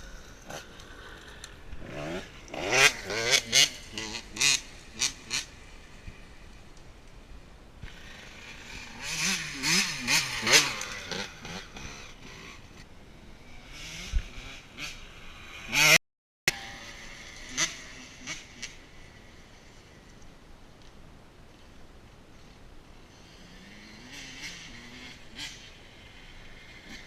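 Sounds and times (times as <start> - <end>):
motorcycle engine revving: 0.0 - 6.5, 7.8 - 20.1, 23.0 - 27.0.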